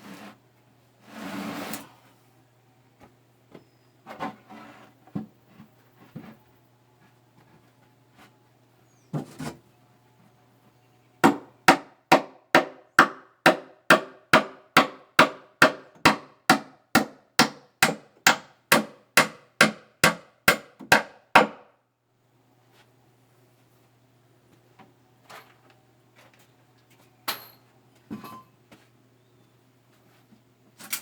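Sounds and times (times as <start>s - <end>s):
hammer striking wood: 11.2s - 21.7s.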